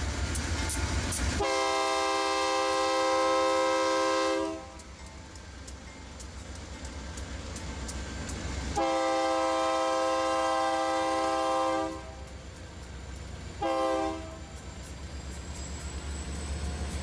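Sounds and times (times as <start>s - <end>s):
low rumble of train: 0.0s - 17.0s
locomotive air horn blasts: 1.4s - 4.8s, 8.8s - 12.3s, 13.6s - 14.5s.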